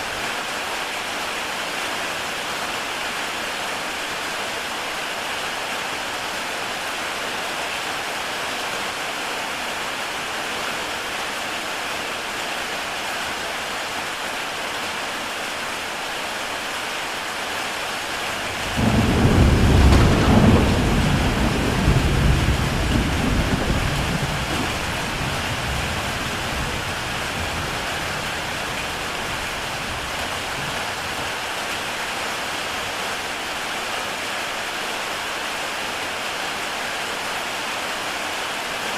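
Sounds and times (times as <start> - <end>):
heavy rain on a tile roof: 0.0 - 38.9
thunder rolling: 18.5 - 28.3.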